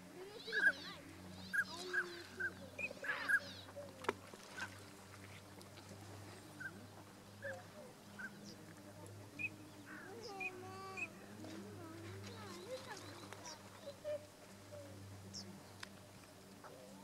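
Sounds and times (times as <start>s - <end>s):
swans honking: 0.0s - 3.8s.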